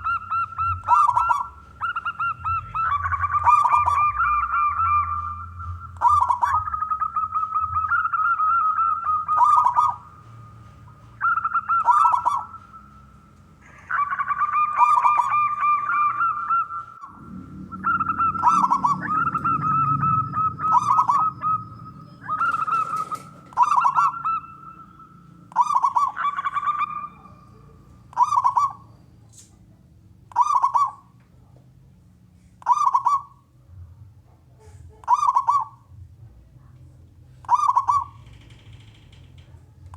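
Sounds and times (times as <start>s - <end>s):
dove cooing: 0.0s - 29.4s, 30.3s - 31.2s, 32.6s - 33.5s, 34.6s - 36.0s, 37.3s - 39.5s.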